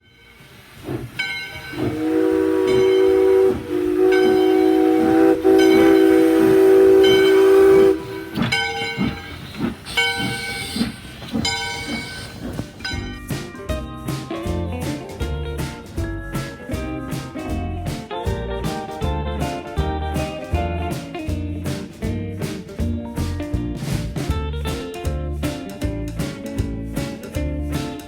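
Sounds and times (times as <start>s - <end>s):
steam locomotive whistle: 0.0s - 13.0s
steam engine hiss and chuff: 0.0s - 18.2s
locomotive bell ringing: 1.2s - 13.6s.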